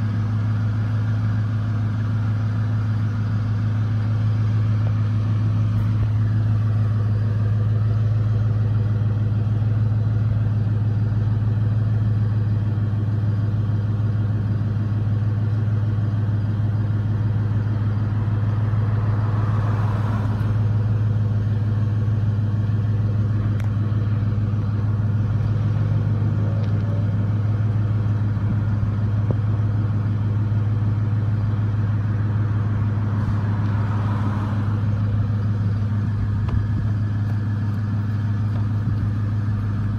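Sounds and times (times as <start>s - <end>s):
pickup engine idling: 0.0s - 39.9s.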